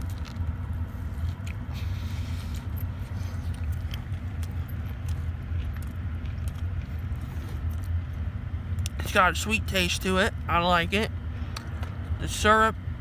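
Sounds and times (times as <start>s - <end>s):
chewing fried chicken: 0.0s - 9.0s
low hum inside a car: 0.0s - 13.0s.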